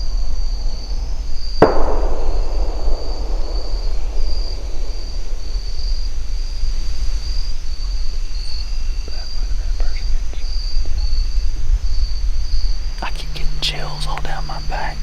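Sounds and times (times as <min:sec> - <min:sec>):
crickets chirping: 0:00.0 - 0:15.0
gunshot with echo: 0:01.6 - 0:08.5.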